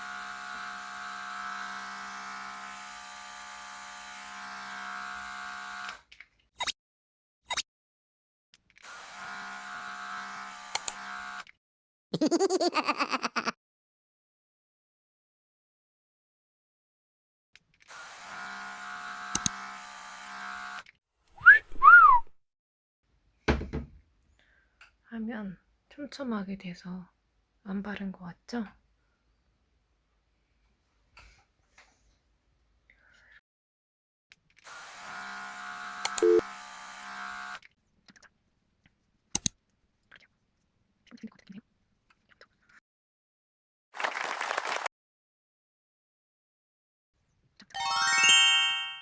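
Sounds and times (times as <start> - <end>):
small motor humming: 0.0 - 6.0, 8.8 - 11.5, 17.9 - 20.9, 34.7 - 37.6
short whistled notes: 21.4 - 22.3.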